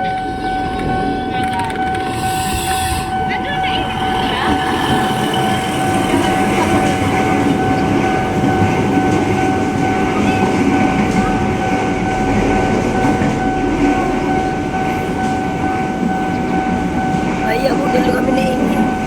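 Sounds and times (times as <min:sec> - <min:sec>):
high-pitched whine: 0:00.0 - 0:09.1
train rumbling: 0:00.0 - 0:19.0.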